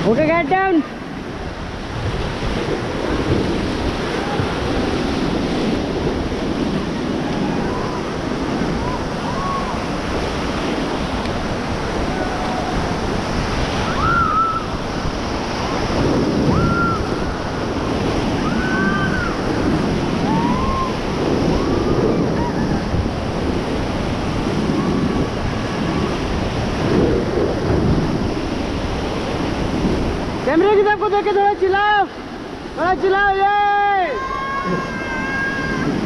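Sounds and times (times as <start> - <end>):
river rapids rushing: 0.0 - 36.0
wind buffeting microphone: 0.0 - 36.0
people shouting: 12.0 - 13.0, 33.4 - 36.0.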